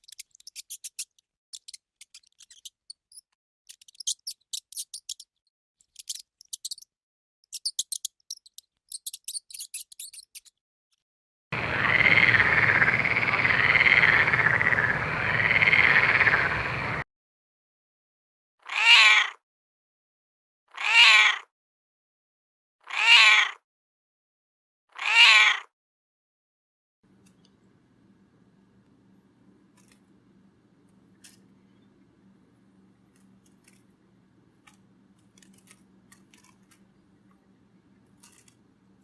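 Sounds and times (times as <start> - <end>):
warbling animal call: 11.6 - 17.0.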